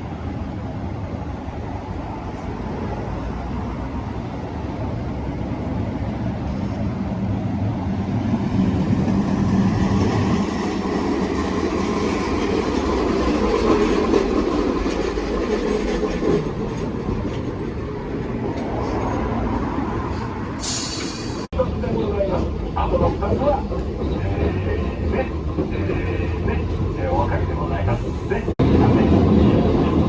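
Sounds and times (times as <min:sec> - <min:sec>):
tram wheels rumbling on rail: 0:00.0 - 0:30.0.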